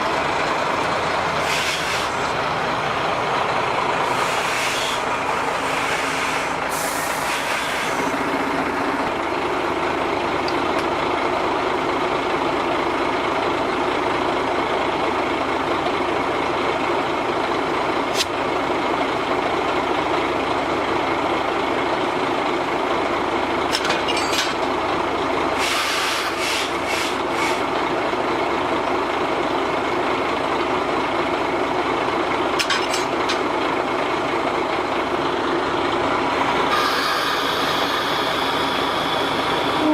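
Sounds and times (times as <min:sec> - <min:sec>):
diesel locomotive engine: 0:00.0 - 0:39.9
air hissing: 0:04.1 - 0:08.2.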